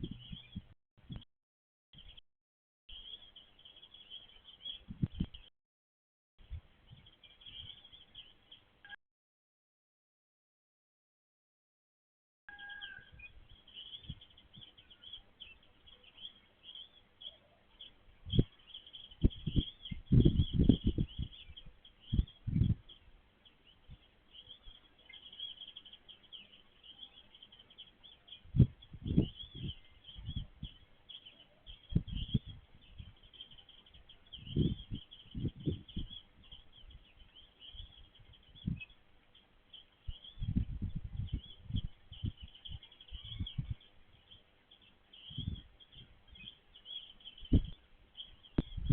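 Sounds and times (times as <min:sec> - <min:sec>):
low thumps and rumbles: 0:00.0 - 0:01.2, 0:19.2 - 0:21.4, 0:48.6 - 0:48.9
songbirds chirping: 0:00.0 - 0:01.3, 0:02.0 - 0:02.2, 0:02.9 - 0:05.5, 0:06.4 - 0:09.0, 0:12.5 - 0:48.9.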